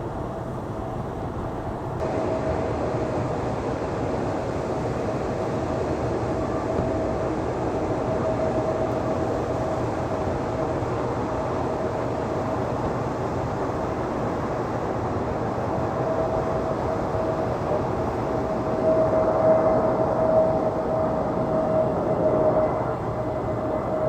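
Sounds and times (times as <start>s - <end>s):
jet engines roaring: 2.0s - 24.0s
steady engine tone: 16.0s - 24.0s.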